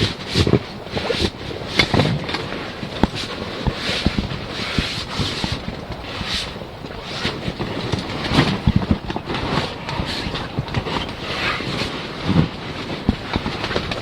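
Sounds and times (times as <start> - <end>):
wind buffeting microphone: 0.0 - 14.0
knocks and thumps: 3.0 - 9.4, 12.3 - 14.0.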